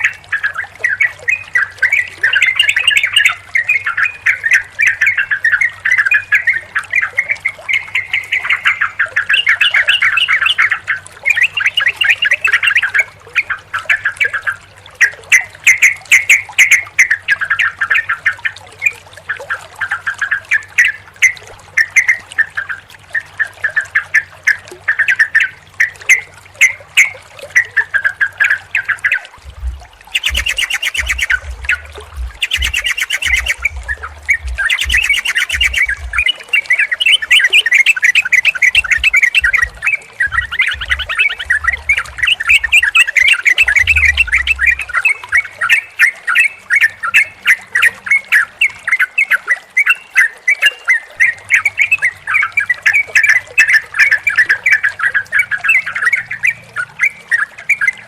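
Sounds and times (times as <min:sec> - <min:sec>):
bulbuls chattering and singing: 0:26.2 - 0:48.4.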